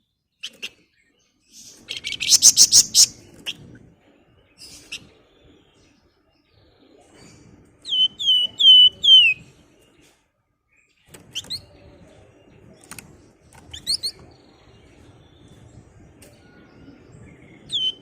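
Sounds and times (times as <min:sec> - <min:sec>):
songbird whistles: 0:01.6 - 0:03.6, 0:07.8 - 0:09.4, 0:16.2 - 0:18.0.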